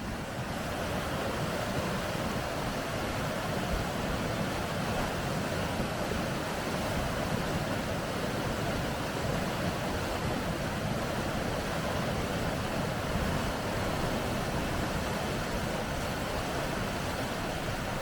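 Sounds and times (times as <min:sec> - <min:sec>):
water rushing over rocks: 0:00.0 - 0:18.0.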